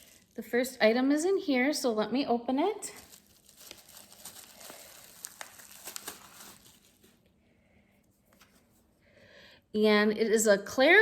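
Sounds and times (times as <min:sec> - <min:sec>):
packaging crinkling: 0:00.0 - 0:00.6, 0:02.9 - 0:07.2.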